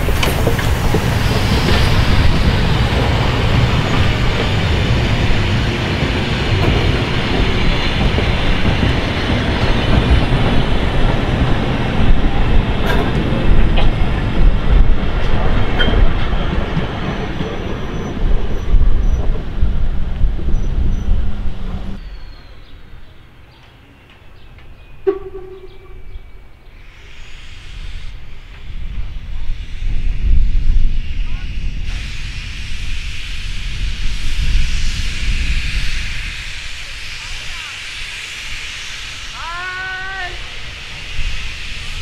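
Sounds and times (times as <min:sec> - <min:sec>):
wheels clicking over rail joints: 0:00.0 - 0:20.6
train wheels rumbling on rails: 0:00.0 - 0:42.0.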